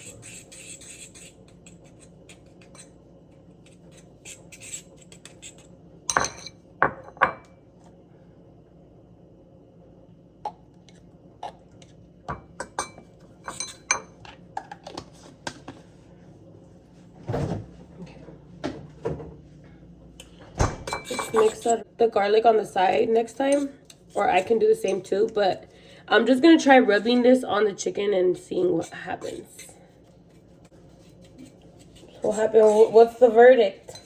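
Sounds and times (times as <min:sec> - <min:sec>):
utensils clinking against dishes: 0:12.3 - 0:14.2, 0:20.9 - 0:21.8, 0:31.3 - 0:34.0.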